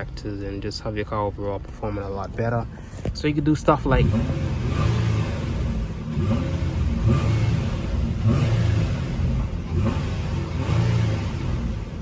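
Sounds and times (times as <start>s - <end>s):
car engine revving in blips: 3.7s - 12.0s.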